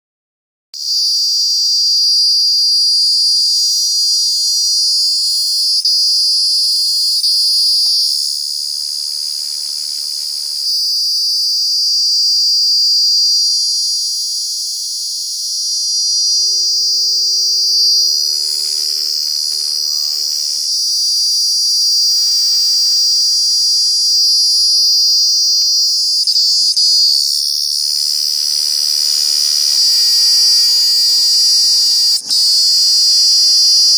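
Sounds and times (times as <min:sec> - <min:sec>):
cicadas droning: 0:00.8 - 0:33.9.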